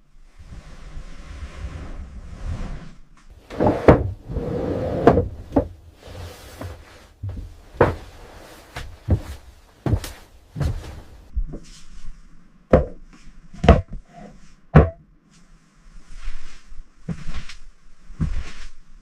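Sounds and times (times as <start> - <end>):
sharp knocks and thuds: 6.6 - 8.2.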